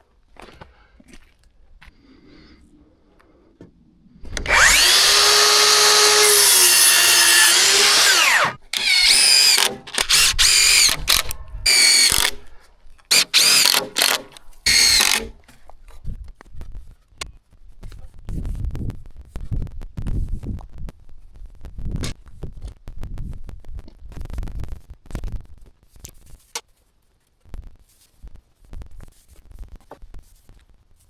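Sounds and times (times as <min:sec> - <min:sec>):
small power tool motor running: 0:04.4 - 0:12.4, 0:13.1 - 0:15.3.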